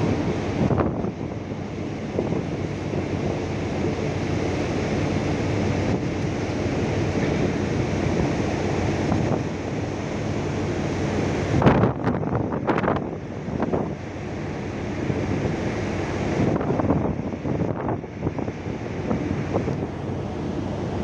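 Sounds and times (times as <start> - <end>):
wind and sea rushing: 0.0 - 21.0
wind buffeting microphone: 0.0 - 21.0.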